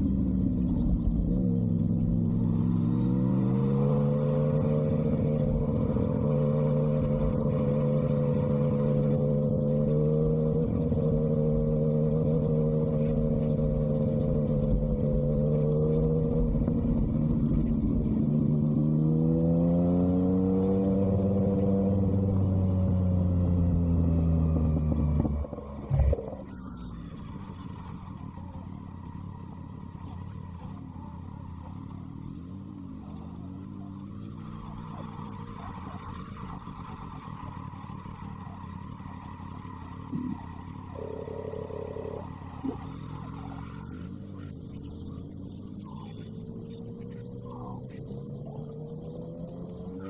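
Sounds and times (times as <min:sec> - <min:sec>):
motorcycle engine while riding: 0:00.0 - 0:50.0.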